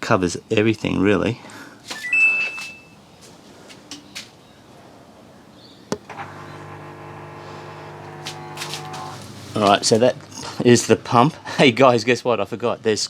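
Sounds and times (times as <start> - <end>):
drain pump humming: 6.0 - 11.2.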